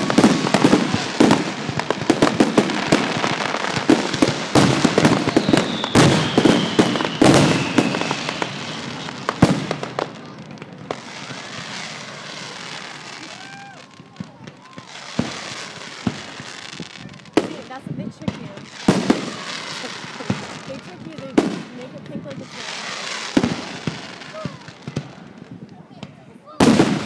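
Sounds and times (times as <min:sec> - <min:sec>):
fireworks and firecrackers banging: 0:00.0 - 0:27.0
firework whistle falling in pitch: 0:05.2 - 0:09.2.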